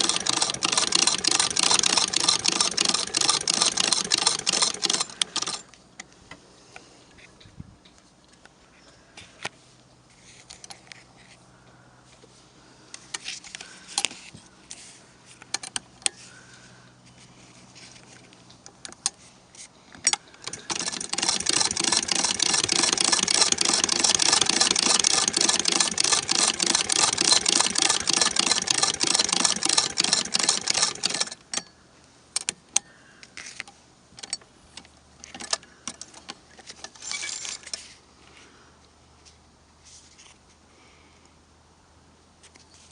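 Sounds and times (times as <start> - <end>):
sewing machine clattering: 0.0 - 5.7, 20.4 - 31.4.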